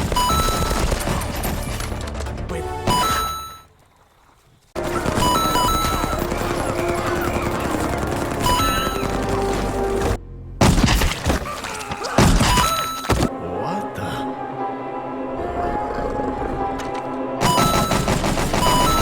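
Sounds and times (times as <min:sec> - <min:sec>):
gunfire: 0:00.0 - 0:02.0, 0:04.8 - 0:09.9, 0:10.6 - 0:11.5, 0:17.4 - 0:19.0
action cartoon music: 0:00.0 - 0:03.7, 0:04.8 - 0:11.5, 0:12.2 - 0:19.0.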